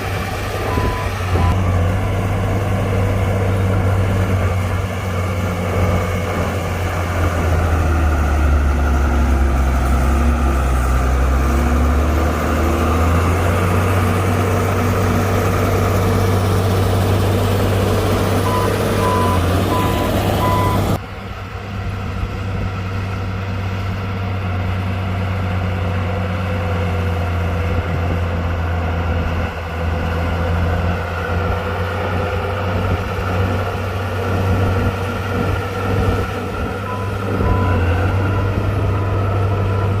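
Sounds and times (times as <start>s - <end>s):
bulldozer diesel engine running: 0.0s - 40.0s
reversing alarm beeping: 0.6s - 2.3s, 18.4s - 21.0s, 36.9s - 40.0s.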